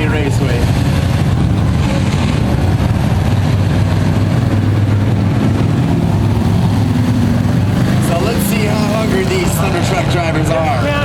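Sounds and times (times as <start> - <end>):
race truck engines rumbling: 0.0 - 11.0.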